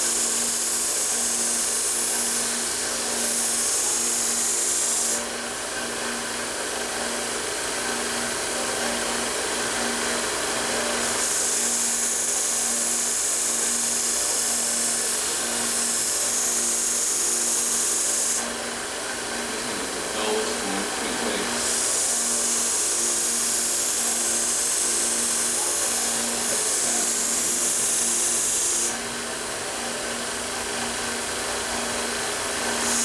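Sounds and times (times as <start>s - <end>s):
belt grinder grinding steel: 19.6s - 29.0s, 32.6s - 33.0s.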